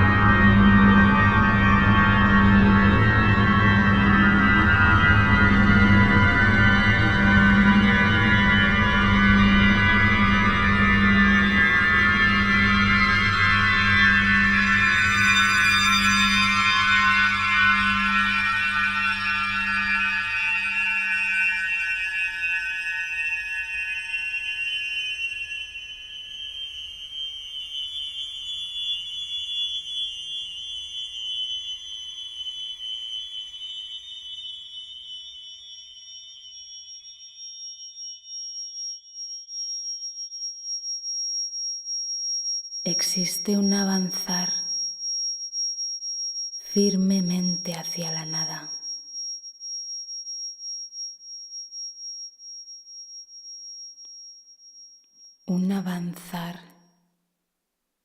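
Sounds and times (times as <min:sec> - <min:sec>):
higher tone: 0:00.0 - 0:20.2
high-pitched electronic drone: 0:00.0 - 0:40.8, 0:46.7 - 0:49.2.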